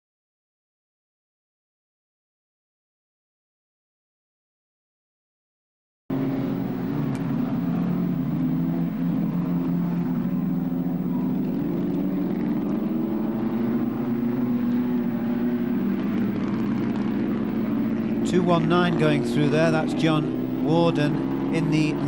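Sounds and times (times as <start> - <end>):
racing car engines running: 6.1 - 22.0.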